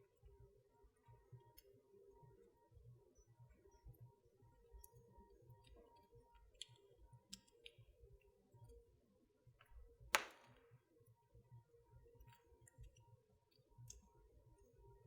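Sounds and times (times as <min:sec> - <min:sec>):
wood fire crackling: 0:10.1 - 0:10.6
loud fire pop: 0:10.2 - 0:10.6.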